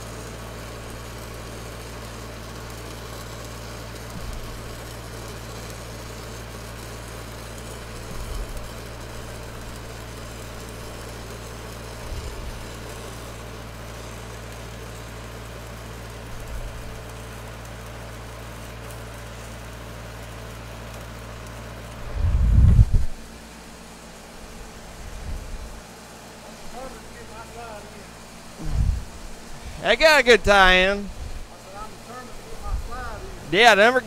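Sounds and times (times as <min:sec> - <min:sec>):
low machine hum: 0:00.0 - 0:19.5, 0:21.0 - 0:34.0
welding arc crackling: 0:00.0 - 0:34.0
brief low thumps: 0:22.1 - 0:23.1, 0:28.6 - 0:29.8.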